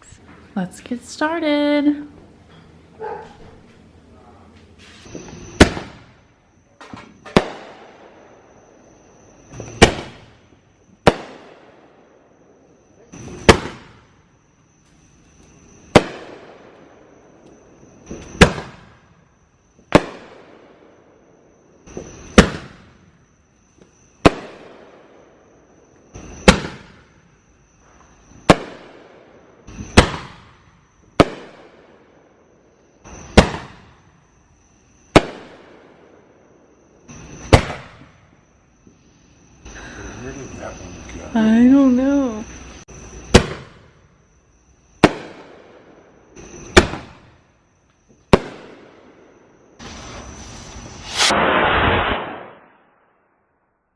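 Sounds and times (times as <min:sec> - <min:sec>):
fireworks banging: 0:04.5 - 0:08.6, 0:09.4 - 0:11.8, 0:13.0 - 0:19.2, 0:19.8 - 0:20.7, 0:21.9 - 0:25.0, 0:26.0 - 0:31.9, 0:33.1 - 0:34.0, 0:35.1 - 0:36.0, 0:37.2 - 0:38.3, 0:43.2 - 0:44.0, 0:45.0 - 0:47.4, 0:48.2 - 0:49.2, 0:49.8 - 0:53.0.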